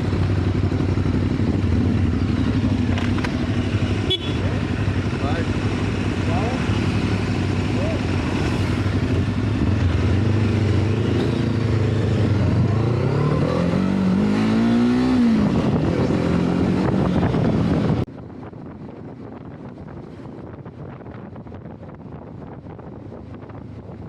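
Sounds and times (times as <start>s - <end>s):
motorcycle engine revving: 0.0s - 18.1s.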